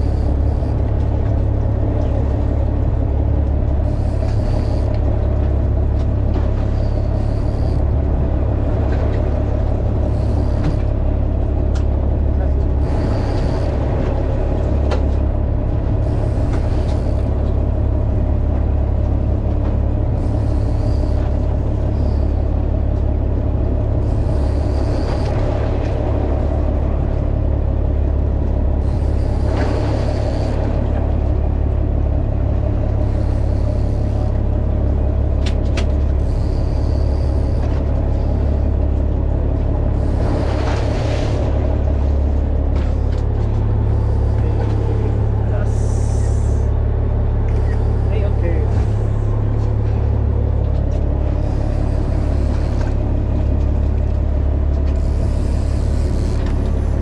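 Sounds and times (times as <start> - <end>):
boat engine rumbling: 0.0 - 57.0.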